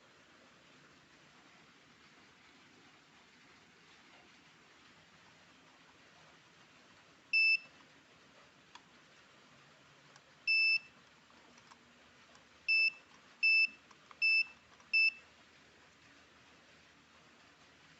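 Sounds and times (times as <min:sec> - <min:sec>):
short high-pitched buzzer beeps: 0:10.5 - 0:10.9, 0:12.7 - 0:15.2.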